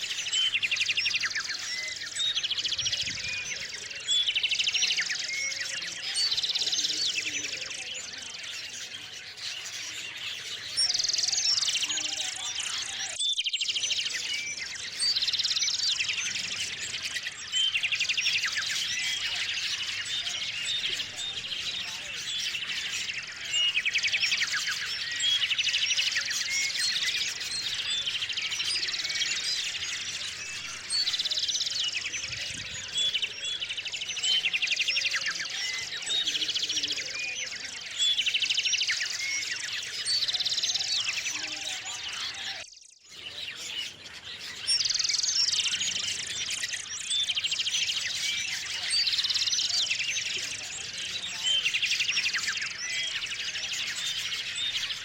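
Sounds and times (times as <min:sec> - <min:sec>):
bird trill: 0:00.0 - 0:55.0
small songbirds chirping: 0:00.0 - 0:55.0.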